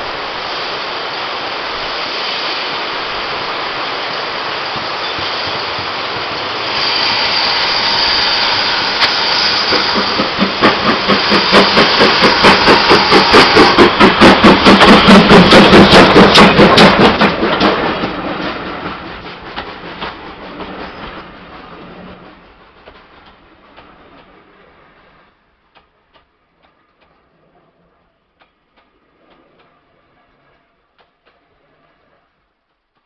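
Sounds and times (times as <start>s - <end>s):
steam hissing: 0.0s - 26.3s
steam locomotive chuffing: 0.0s - 33.0s.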